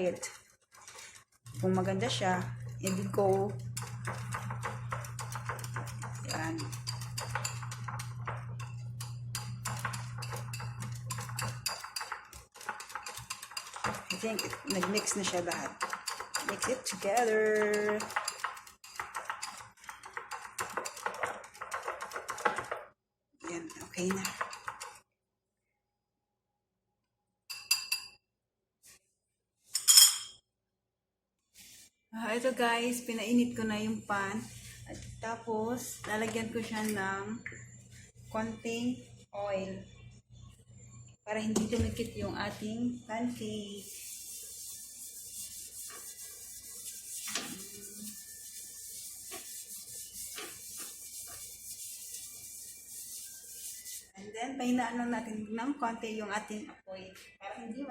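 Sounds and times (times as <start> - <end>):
cooking utensil scraping and knocking: 0.0 - 22.9, 23.6 - 25.0, 43.8 - 54.0
kitchenware clinking: 2.6 - 22.9, 27.5 - 28.2, 29.7 - 30.4.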